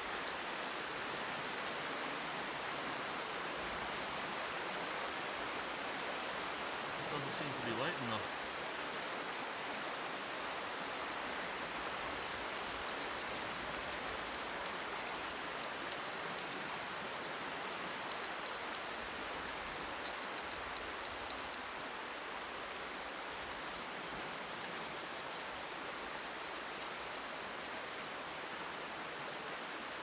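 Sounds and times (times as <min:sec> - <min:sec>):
sharp high scratches and clicks: 0:00.0 - 0:01.1, 0:12.2 - 0:21.8, 0:23.3 - 0:28.1
river rushing: 0:06.7 - 0:29.0.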